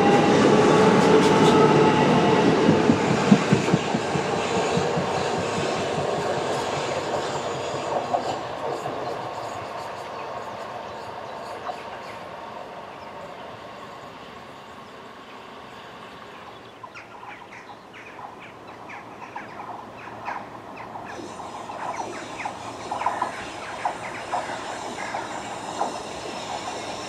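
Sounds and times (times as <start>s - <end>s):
electric train running on rails: 0.0s - 27.0s.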